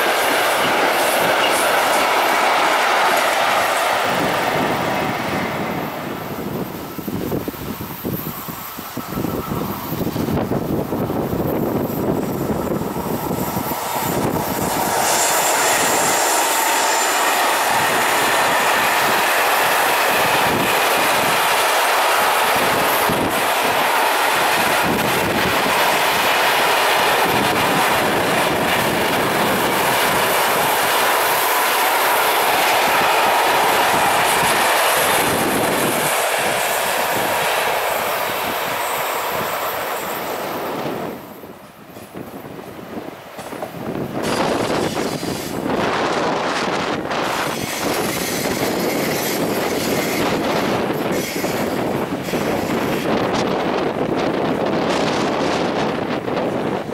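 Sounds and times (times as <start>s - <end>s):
passenger train passing: 0.0s - 56.9s
freight wagons rolling on rails: 43.3s - 56.9s
wheel squeal: 47.3s - 53.1s.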